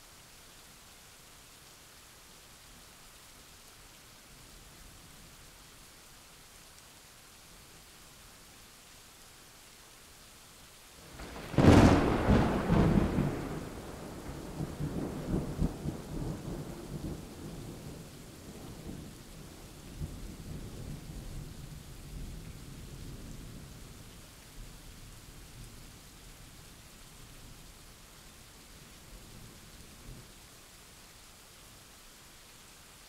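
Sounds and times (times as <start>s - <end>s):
steady rain: 0.0s - 33.0s
thunder crack and rumble: 11.2s - 17.6s.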